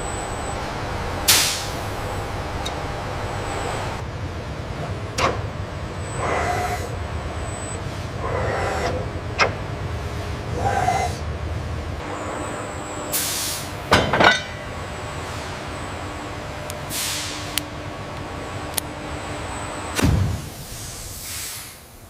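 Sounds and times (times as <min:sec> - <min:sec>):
factory machinery humming: 0:00.0 - 0:22.0
short air hisses: 0:13.2 - 0:13.7, 0:16.9 - 0:17.4, 0:20.6 - 0:21.9
metal clanks: 0:13.9 - 0:14.7.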